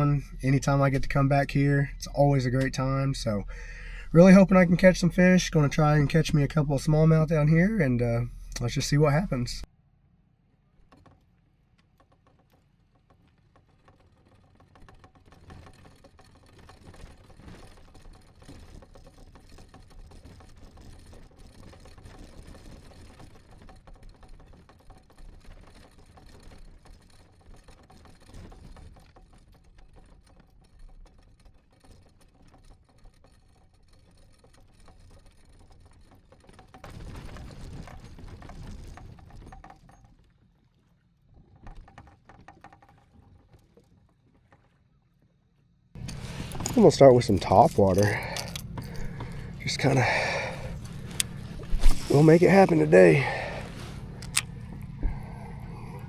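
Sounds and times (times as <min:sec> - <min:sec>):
kayak splashing: 0:46.0 - 0:56.0.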